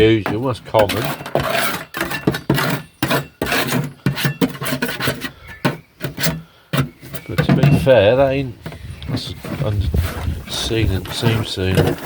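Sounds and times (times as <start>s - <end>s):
hand tools knocking on metal: 6.8s - 8.0s.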